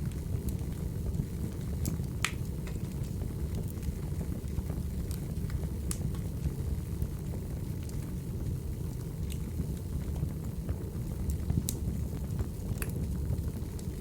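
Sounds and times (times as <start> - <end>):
logs crackling and popping: 0.0 - 14.0
rumble of flames: 0.0 - 14.0.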